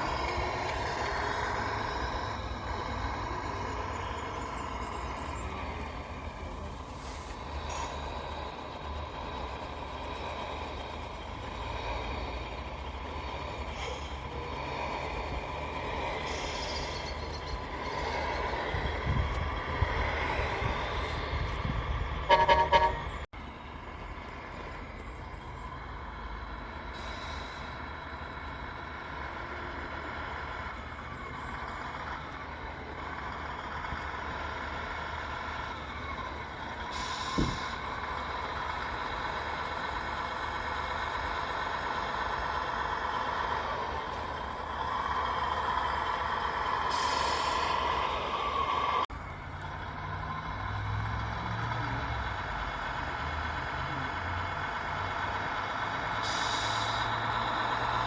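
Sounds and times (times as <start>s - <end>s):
loud horn toot: 22.2s - 23.2s.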